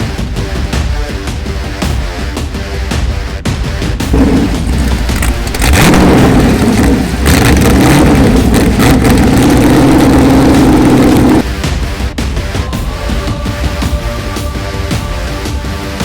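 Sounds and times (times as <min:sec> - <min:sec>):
car engine revving: 0:04.1 - 0:11.5.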